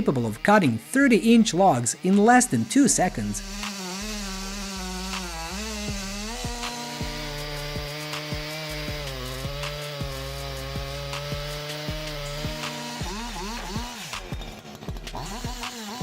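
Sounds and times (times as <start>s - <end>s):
background music with steady beat: 0.0s - 16.0s.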